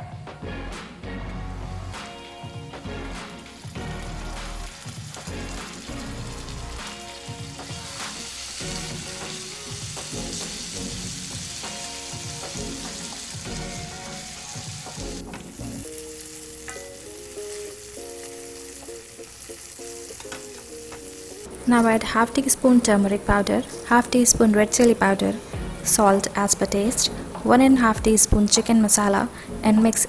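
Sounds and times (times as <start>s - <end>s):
background music: 0.0s - 30.0s
masala sizzling in hot oil: 1.0s - 30.0s.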